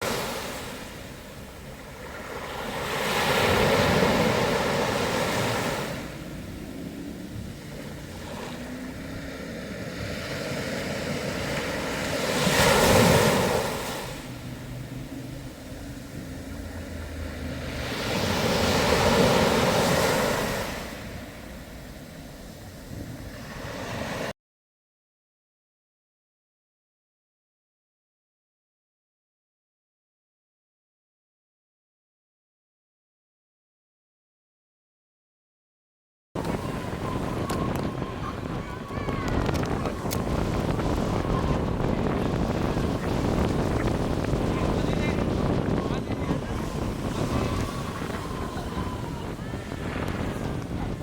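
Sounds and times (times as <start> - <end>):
wind buffeting microphone: 0.0 - 24.2, 36.4 - 51.0
sea waves washing onto shore: 0.0 - 24.3, 36.4 - 51.0.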